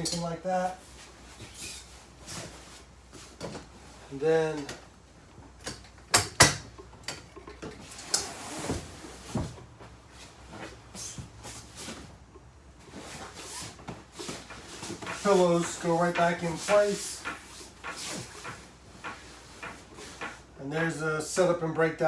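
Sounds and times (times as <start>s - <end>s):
cushions rustling: 0.0s - 5.6s, 7.7s - 20.6s
soft handling sounds: 0.0s - 6.1s, 6.7s - 20.6s
sharp knocks on furniture: 13.9s - 20.5s.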